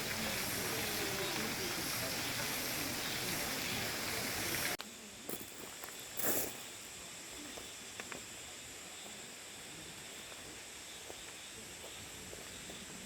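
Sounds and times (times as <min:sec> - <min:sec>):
stream rushing: 0:00.0 - 0:04.8.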